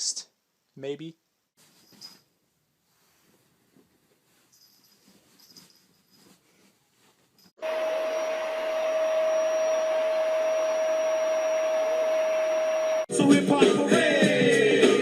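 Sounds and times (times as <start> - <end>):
electric appliance motor running: 7.6 - 13.0
held whining tone: 7.6 - 13.1.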